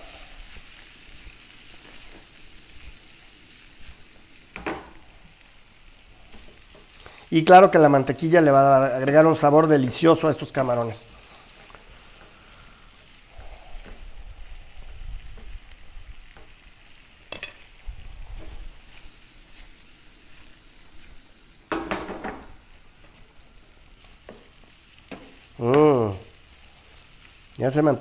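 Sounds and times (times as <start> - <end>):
shrimp sizzling in butter: 0.0 - 28.0
wooden spatula stirring: 6.2 - 17.6, 18.3 - 27.6.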